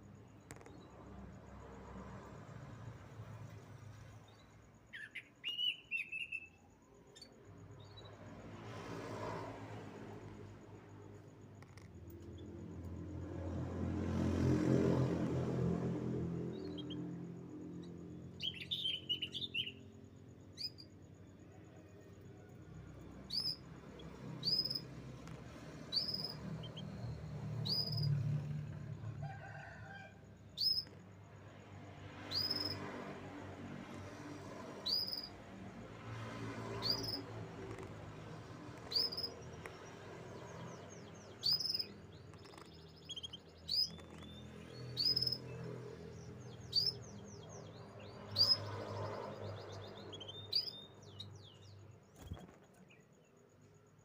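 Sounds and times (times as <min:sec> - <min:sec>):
canary chirping: 0:17.8 - 0:20.0, 0:23.1 - 0:28.6, 0:30.6 - 0:31.0, 0:32.3 - 0:32.8, 0:34.0 - 0:35.4, 0:36.0 - 0:52.5
canary trills: 0:23.0 - 0:30.0, 0:30.6 - 0:31.0, 0:32.2 - 0:33.2, 0:33.8 - 0:52.9.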